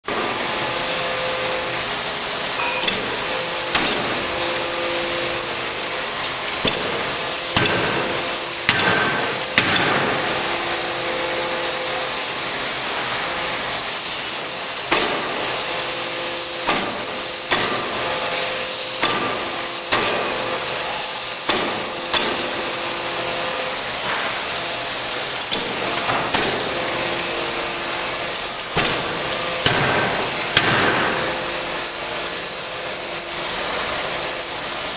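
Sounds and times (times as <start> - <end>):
machinery hissing: 0.1 - 34.9
forging hammer blows: 2.6 - 5.7.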